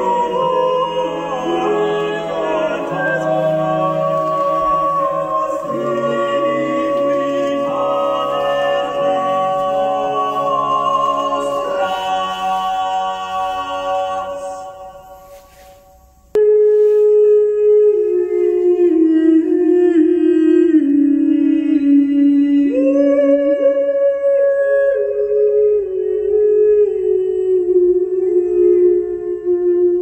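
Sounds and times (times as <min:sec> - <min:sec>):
slow melody over loudspeakers: 0:00.0 - 0:30.0.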